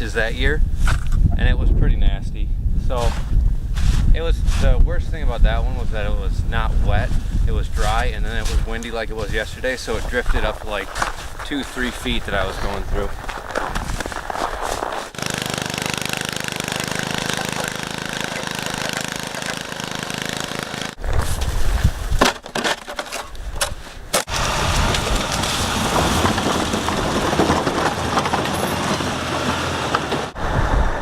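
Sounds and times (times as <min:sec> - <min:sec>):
engine drone: 0:15.2 - 0:21.0, 0:24.3 - 0:31.0.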